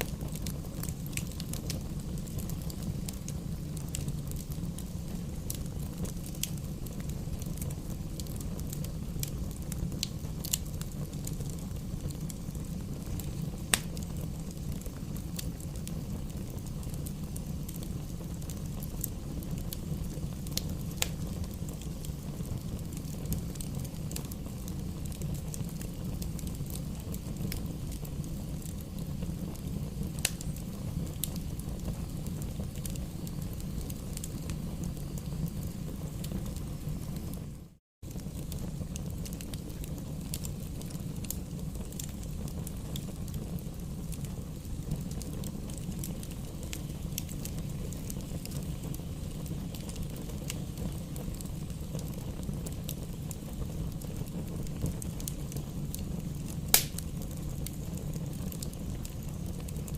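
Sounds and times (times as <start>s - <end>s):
burning wood crackling and popping: 0.0s - 59.9s
flames rumbling: 0.0s - 59.9s.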